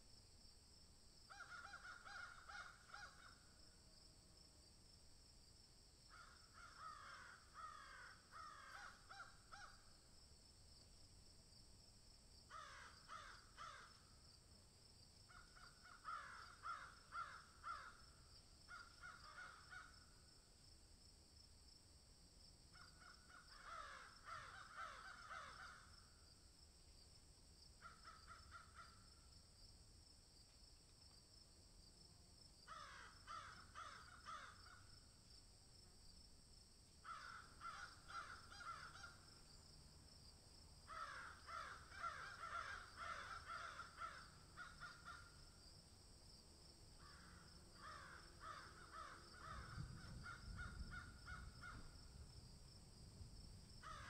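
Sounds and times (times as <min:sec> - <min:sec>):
faint bird calls: 0:01.3 - 0:03.5, 0:06.1 - 0:09.9, 0:15.3 - 0:18.0, 0:18.7 - 0:20.0, 0:22.7 - 0:25.9, 0:27.8 - 0:29.3, 0:37.0 - 0:39.3.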